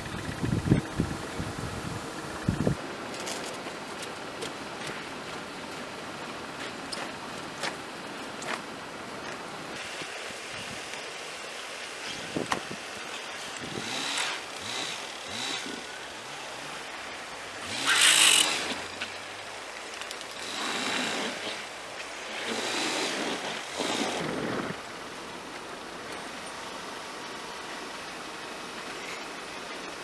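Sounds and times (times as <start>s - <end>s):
tyres churning snow: 12.8s - 26.0s.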